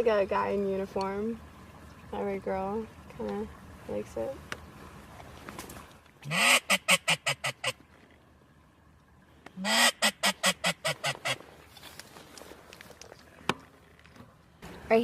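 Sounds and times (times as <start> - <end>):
duck quacking: 6.2 - 7.8, 9.6 - 11.4.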